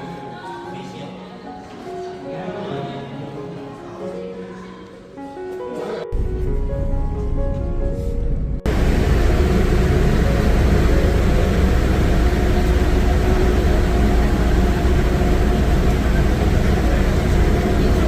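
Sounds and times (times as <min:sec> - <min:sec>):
large engine rumbling: 0:08.6 - 0:18.0.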